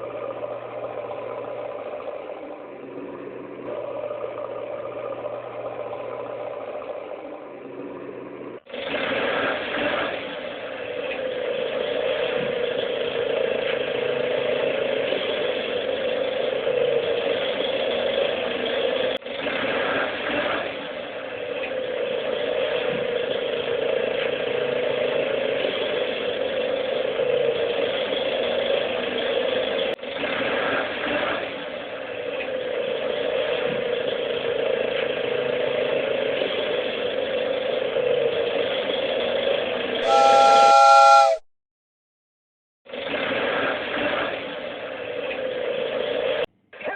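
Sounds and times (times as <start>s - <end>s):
toy train whistle: 40.0s - 41.5s.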